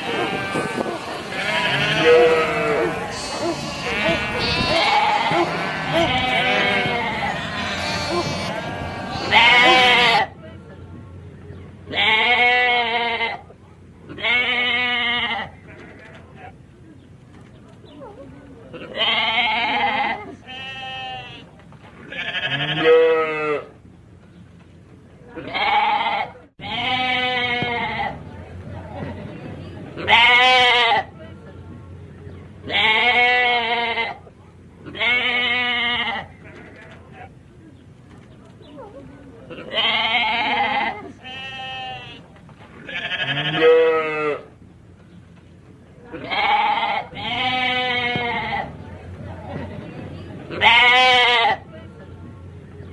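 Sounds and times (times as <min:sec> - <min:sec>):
sheep bleating: 0:00.0 - 0:10.3, 0:19.0 - 0:21.4, 0:22.1 - 0:23.3, 0:39.7 - 0:42.2, 0:42.9 - 0:44.3.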